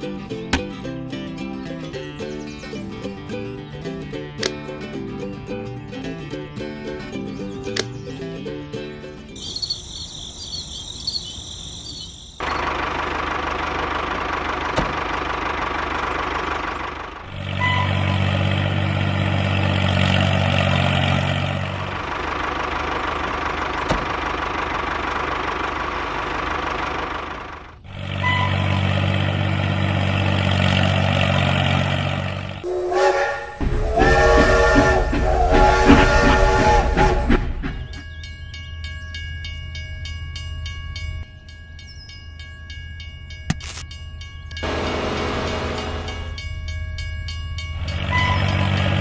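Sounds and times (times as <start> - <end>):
tractor engine running: 11.9 - 41.4, 43.3 - 49.0
high warbling tone: 32.6 - 35.8.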